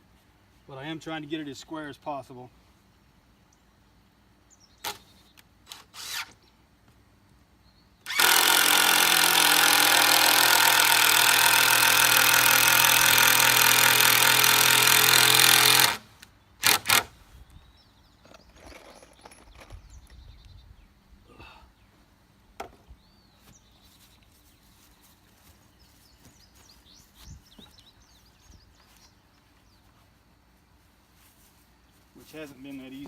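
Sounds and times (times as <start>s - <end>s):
power drill driving a screw: 5.7s - 6.4s, 8.0s - 17.1s.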